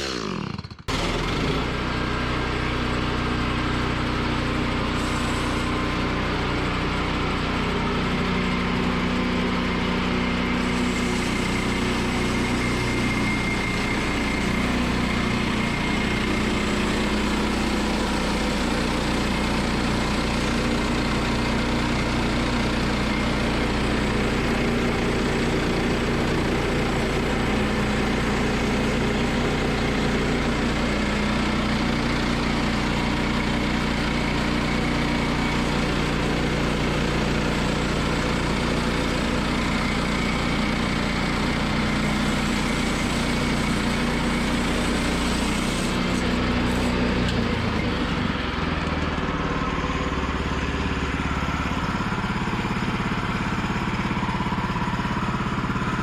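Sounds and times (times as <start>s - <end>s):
sawmill gasoline engine running: 0.0s - 56.0s.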